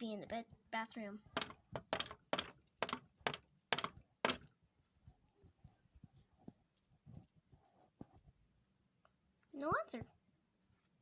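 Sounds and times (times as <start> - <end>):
sharp thumps: 1.3 - 4.5.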